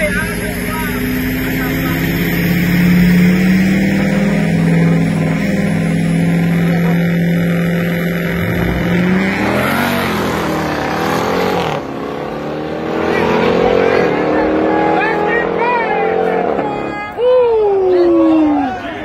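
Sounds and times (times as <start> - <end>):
car engines revving and accelerating: 0.0 - 18.4.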